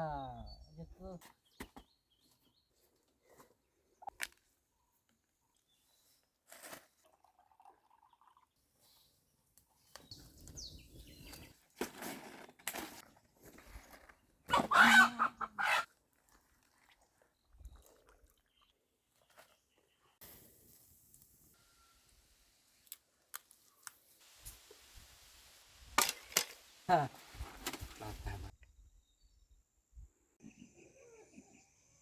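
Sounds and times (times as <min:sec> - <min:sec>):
chicken squawking: 0:14.5 - 0:15.9.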